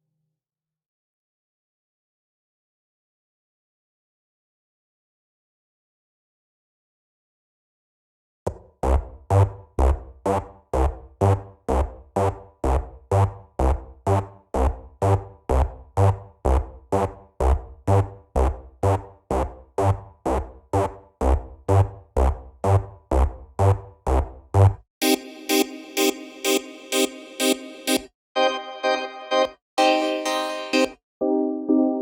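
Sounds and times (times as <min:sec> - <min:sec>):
drum machine kick loop: 0:08.5 - 0:28.1.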